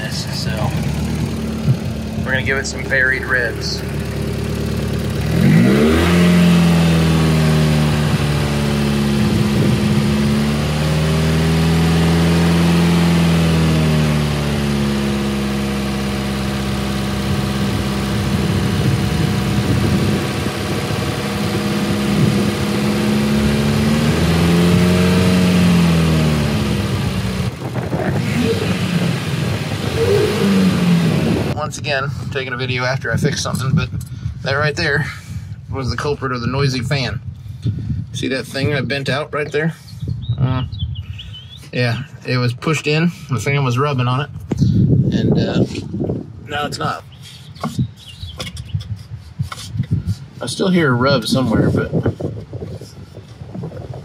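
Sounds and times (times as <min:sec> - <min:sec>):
car engine revving: 0:00.0 - 0:31.8.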